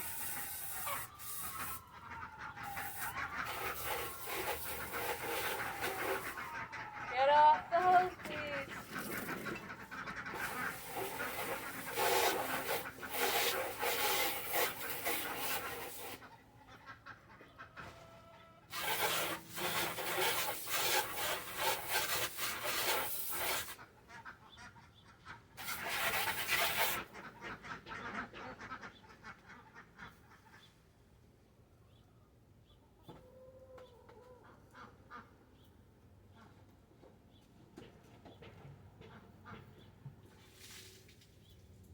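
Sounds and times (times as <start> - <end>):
coarse rubbing or scraping: 0.0 - 1.9, 2.6 - 6.6, 7.7 - 16.3, 18.7 - 23.8, 25.6 - 27.1.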